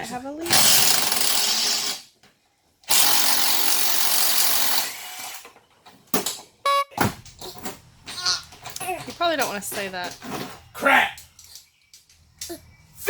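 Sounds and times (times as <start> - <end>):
impact driver running: 0.4 - 2.0, 2.9 - 5.4.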